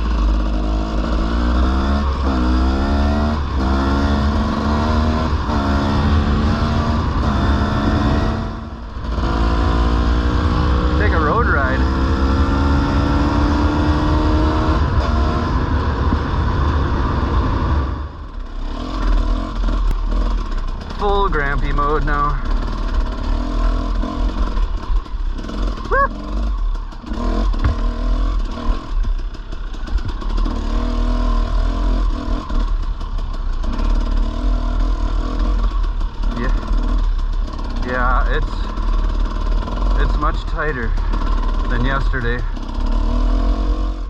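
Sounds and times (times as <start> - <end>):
dirt bike engine: 0.0 - 44.0
wind rumble on microphone: 13.2 - 18.4.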